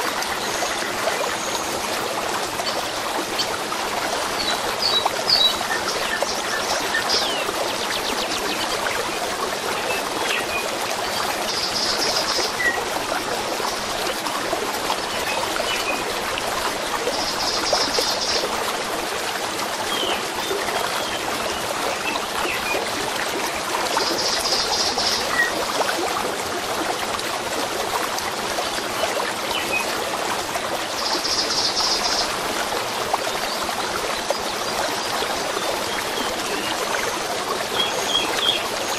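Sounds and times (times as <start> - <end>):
stream running: 0.0 - 38.9.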